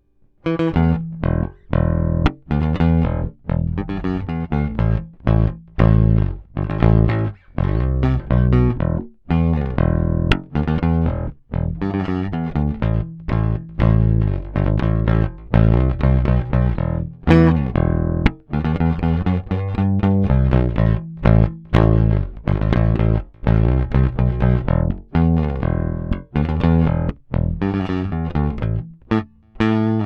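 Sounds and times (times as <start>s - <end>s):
bass guitar plucked notes: 0.0s - 30.0s.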